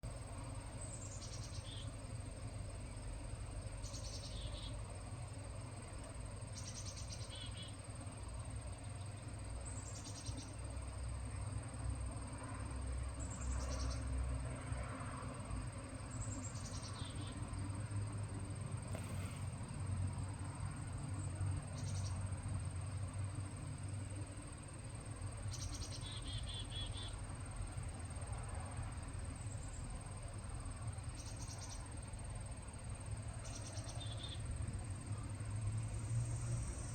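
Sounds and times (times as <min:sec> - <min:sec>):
distant traffic rumble: 0:00.0 - 0:36.9
chickadee calling: 0:00.8 - 0:02.0, 0:06.6 - 0:07.8.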